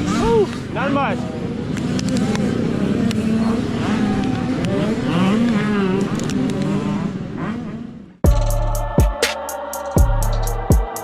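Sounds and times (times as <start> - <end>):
dirt bike engines revving: 0.0 - 8.2.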